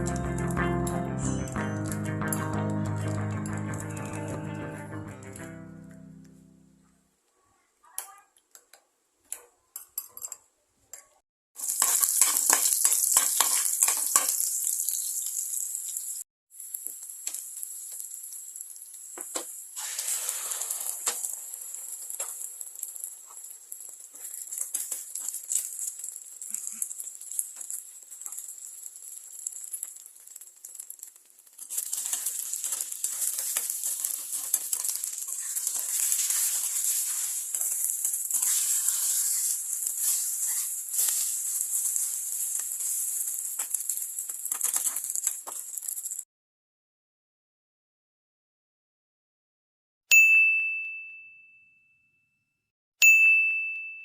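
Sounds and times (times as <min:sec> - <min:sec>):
utensil scraping against pan: 0:11.6 - 0:14.4, 0:31.7 - 0:43.7
food sizzling in a hot pan: 0:11.6 - 0:46.3.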